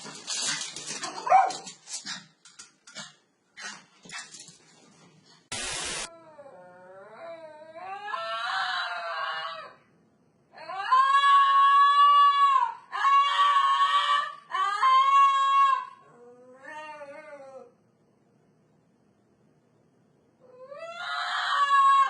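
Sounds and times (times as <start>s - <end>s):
animal howling: 20.5s - 22.0s.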